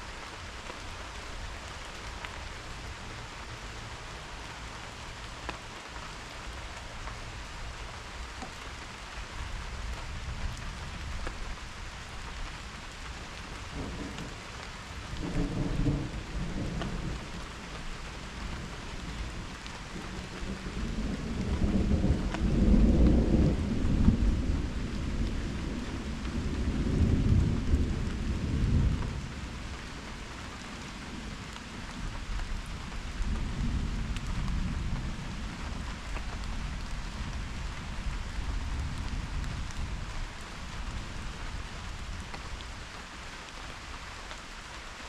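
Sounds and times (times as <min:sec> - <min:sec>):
steady rain falling: 0:00.0 - 0:45.0
thunder rumbling: 0:13.7 - 0:30.2.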